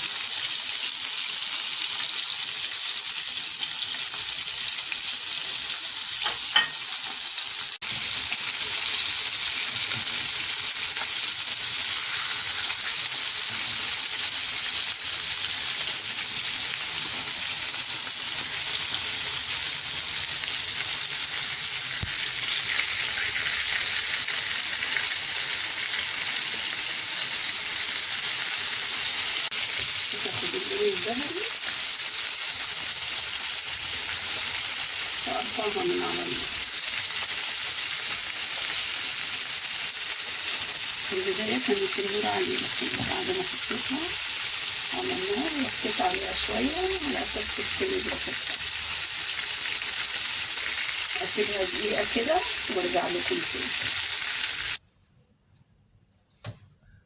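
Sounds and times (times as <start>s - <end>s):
chicken deep-frying in oil: 0.0s - 54.8s.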